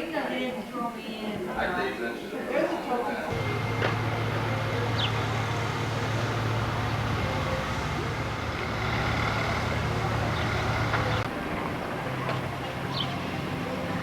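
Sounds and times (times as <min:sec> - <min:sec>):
vehicle engine running: 0:03.3 - 0:14.0.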